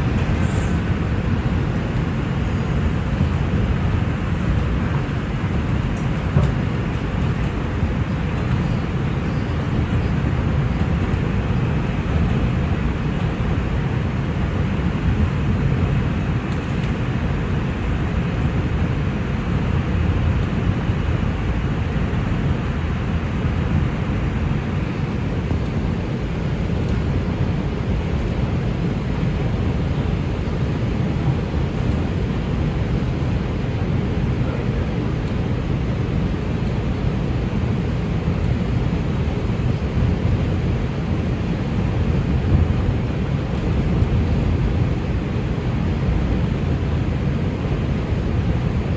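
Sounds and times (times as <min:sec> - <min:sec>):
subway train wheels rumbling: 0:00.0 - 0:48.9.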